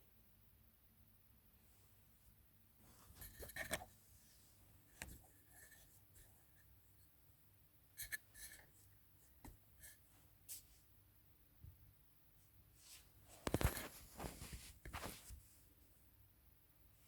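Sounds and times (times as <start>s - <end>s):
faint scratching and tapping: 2.8s - 7.1s, 8.0s - 10.8s, 12.8s - 15.6s.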